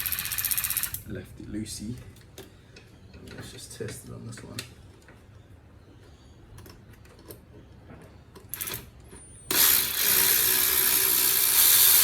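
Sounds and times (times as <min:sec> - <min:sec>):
cordless power tool running: 0:09.5 - 0:12.0.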